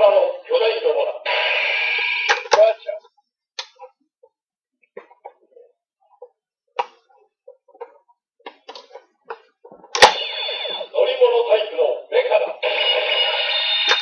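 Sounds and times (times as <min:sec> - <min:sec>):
plastic clicks and clacks: 0:06.8 - 0:10.2
toy electronic sound effect: 0:10.0 - 0:11.0.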